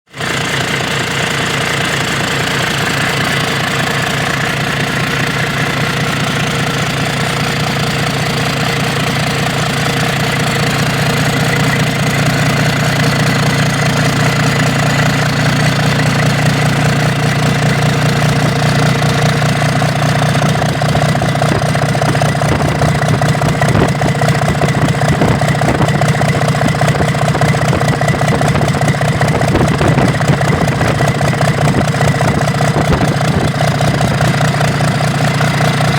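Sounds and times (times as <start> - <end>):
engine running with fast firing beat: 0.1 - 35.9.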